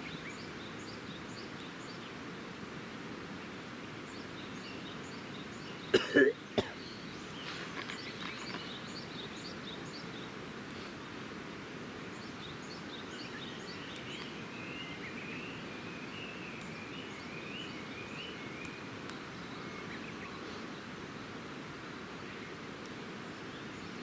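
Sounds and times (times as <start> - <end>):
steady outdoor hiss: 0.0 - 24.0
campfire crackling: 0.1 - 24.0
bird singing: 4.1 - 10.3, 12.1 - 20.8.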